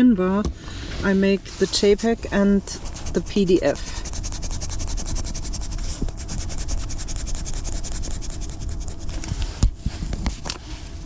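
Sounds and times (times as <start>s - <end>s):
pen scribbling on paper: 2.7s - 9.2s.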